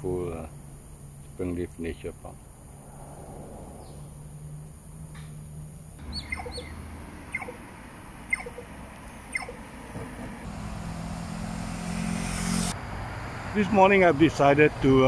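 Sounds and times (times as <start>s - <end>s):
bird chirping: 6.0s - 10.4s.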